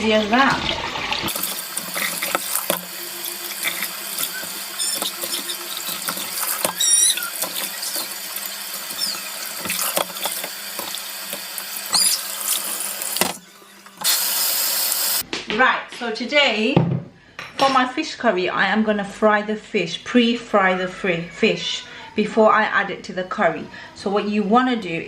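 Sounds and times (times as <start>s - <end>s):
tap water running into sink: 0.0s - 15.2s
fish pieces knocking: 1.3s - 13.4s
short squeaks: 3.5s - 10.5s, 11.8s - 12.8s.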